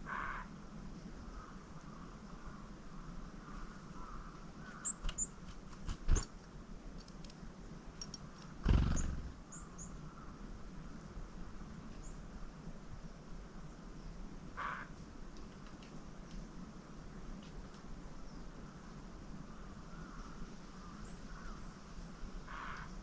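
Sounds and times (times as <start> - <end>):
birds chip calls: 4.0 - 6.3, 8.2 - 10.0.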